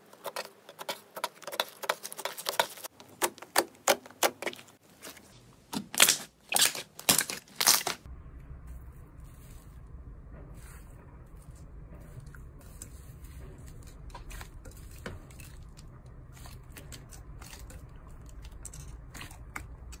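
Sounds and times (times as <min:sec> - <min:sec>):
low steady hum: 0:07.0 - 0:20.0.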